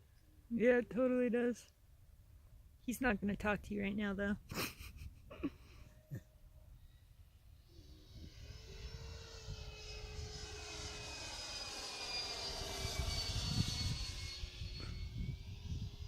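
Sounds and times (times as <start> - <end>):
model airplane swishing overhead: 6.8 - 16.0
electric ducted fans whining: 7.2 - 16.0.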